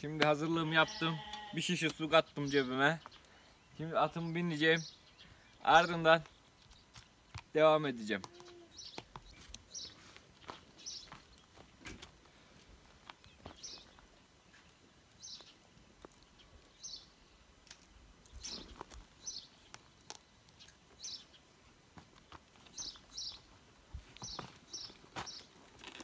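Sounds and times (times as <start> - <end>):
small bird chirping: 8.3 - 11.6, 13.2 - 17.4, 18.2 - 21.5, 22.6 - 23.5, 24.2 - 25.6.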